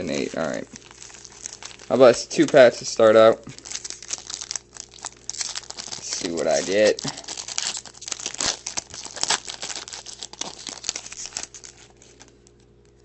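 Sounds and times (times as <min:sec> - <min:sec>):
card pack wrappers tearing and crinkling: 0:00.0 - 0:12.5.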